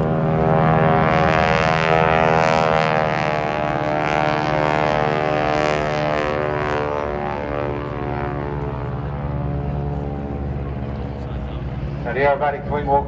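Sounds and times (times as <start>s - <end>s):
propeller aircraft droning: 0.0s - 13.0s.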